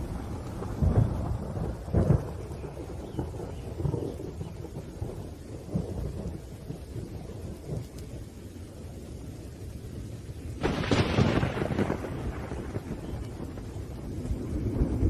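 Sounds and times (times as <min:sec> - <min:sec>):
rain: 0:00.0 - 0:15.0
rumbling thunder: 0:00.0 - 0:15.0
loud thunder clap: 0:10.6 - 0:15.0.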